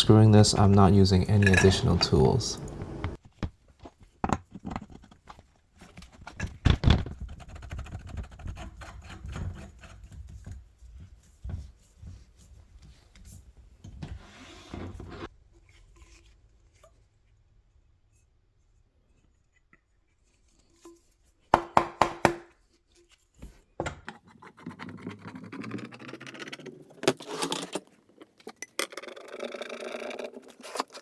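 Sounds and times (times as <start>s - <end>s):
parts knocking: 0.0s - 3.2s
parts scraping and rubbing: 0.0s - 3.2s, 24.1s - 31.0s.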